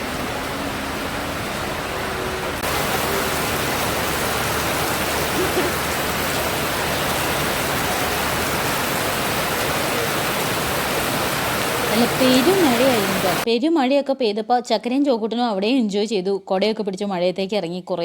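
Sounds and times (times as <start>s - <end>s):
heavy rain downpour: 0.0s - 13.5s.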